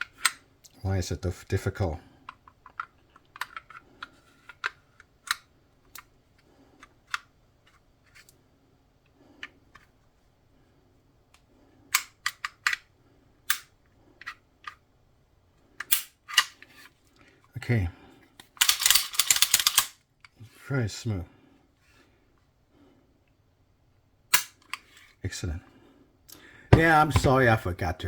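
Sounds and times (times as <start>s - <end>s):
metallic clicks of pistol handling: 13.5s - 14.8s, 15.8s - 16.7s, 18.4s - 20.4s, 24.3s - 24.9s.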